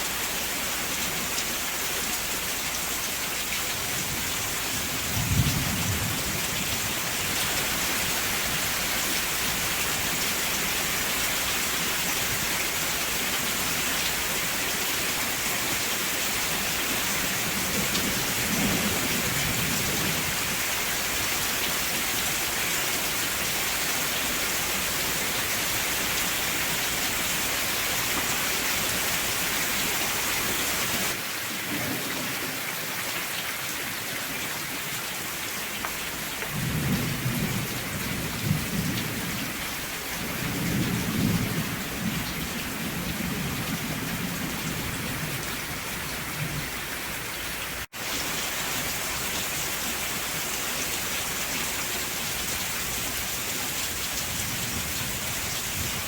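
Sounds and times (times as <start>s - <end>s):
heavy rain: 0.0s - 56.0s
thunder rolling: 4.9s - 6.7s, 36.5s - 39.5s.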